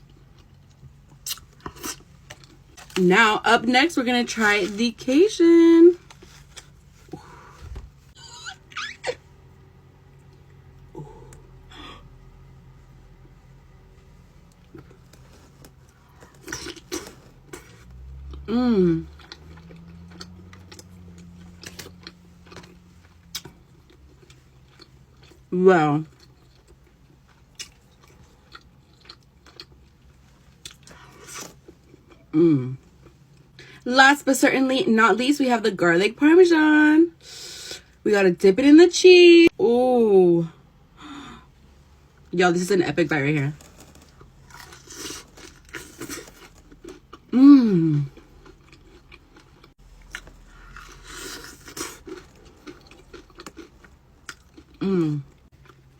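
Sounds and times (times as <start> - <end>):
person chewing and crunching: 0.0 - 3.1, 14.5 - 33.6, 43.5 - 55.9.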